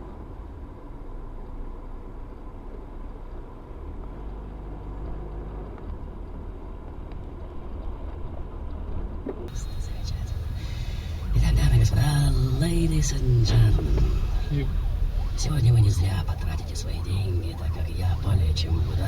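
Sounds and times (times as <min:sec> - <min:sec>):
car engine and road noise: 0:00.0 - 0:19.0
faint thin whine: 0:09.5 - 0:19.0.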